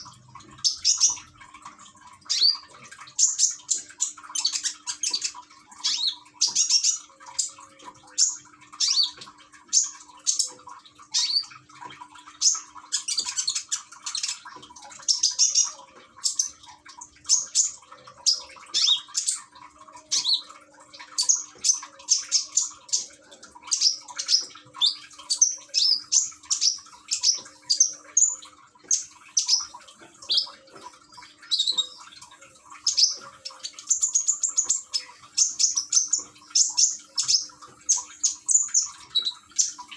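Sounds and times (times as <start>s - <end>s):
fountain water trickling: 0.0s - 39.9s.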